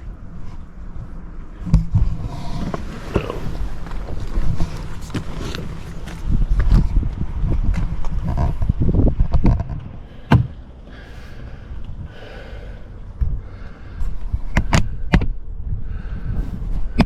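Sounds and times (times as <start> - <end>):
soft rustling: 0.4 - 7.3.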